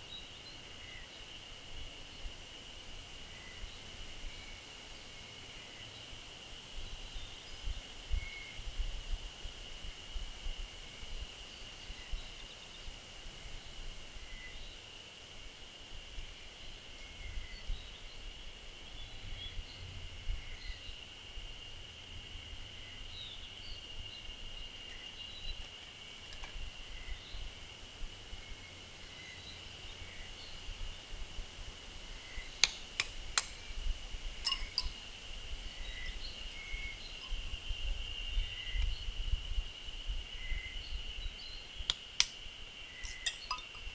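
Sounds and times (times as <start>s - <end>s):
bird chirps: 42.9s - 43.9s.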